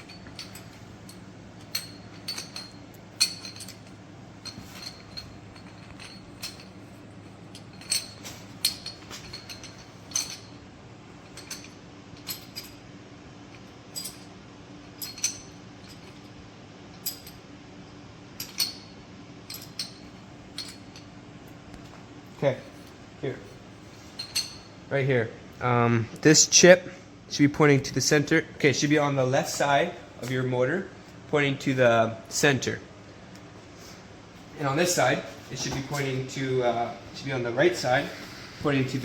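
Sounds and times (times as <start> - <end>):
metal parts clinking: 0.0 - 12.9, 13.5 - 17.5, 18.4 - 21.1, 22.6 - 24.8
steady low hum: 0.0 - 39.0.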